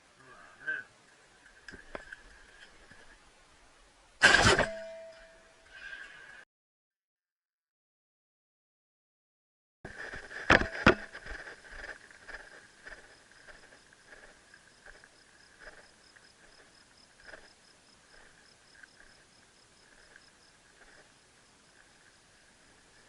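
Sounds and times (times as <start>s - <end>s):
insects chirping: 10.7s - 23.0s.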